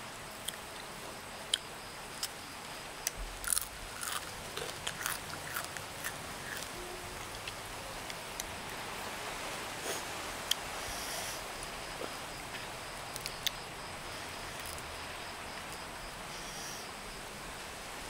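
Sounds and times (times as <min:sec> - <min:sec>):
crunching and chewing: 0:00.4 - 0:00.9, 0:01.5 - 0:08.7, 0:12.0 - 0:15.9.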